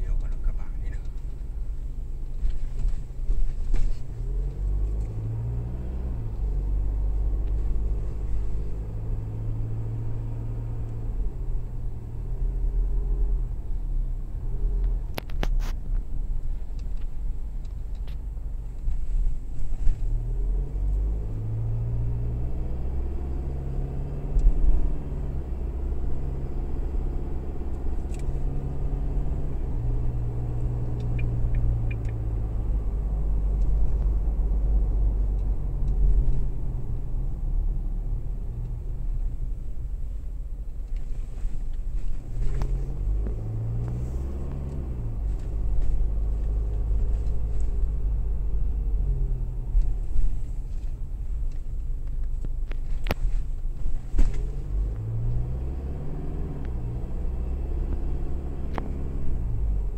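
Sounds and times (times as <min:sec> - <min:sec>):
car engine revving inside cabin: 0:00.0 - 0:15.5, 0:16.2 - 0:59.9
sharp clicks: 0:30.9 - 0:32.2.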